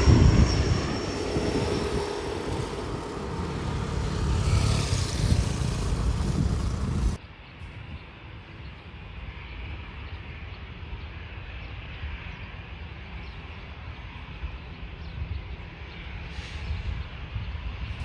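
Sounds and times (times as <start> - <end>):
distant aircraft engines rumbling: 0.0 - 7.2.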